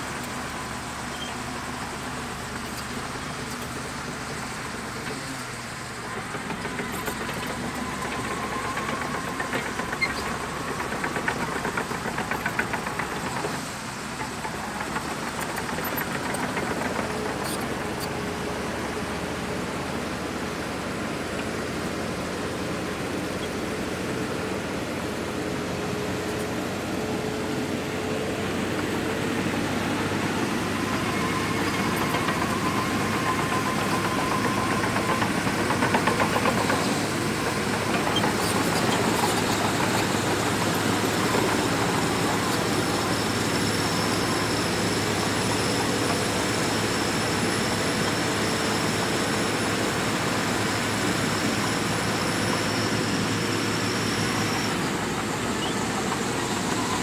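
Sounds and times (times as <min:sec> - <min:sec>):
bulldozer diesel drone: 0:00.0 - 0:57.0
machine clatter: 0:30.7 - 0:45.4.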